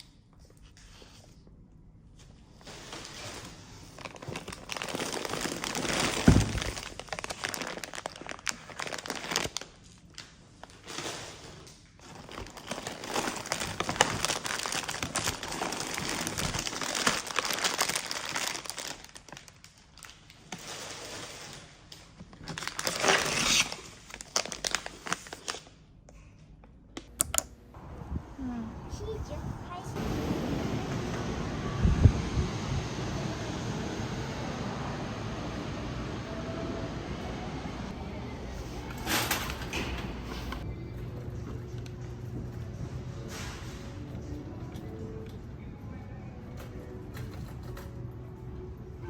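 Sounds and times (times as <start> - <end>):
packaging crinkling and tearing: 3.8 - 25.8.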